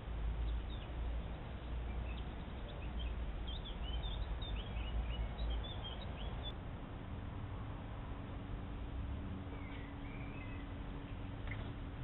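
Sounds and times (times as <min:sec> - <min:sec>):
small birds chirping: 0:00.4 - 0:06.6, 0:09.5 - 0:11.8.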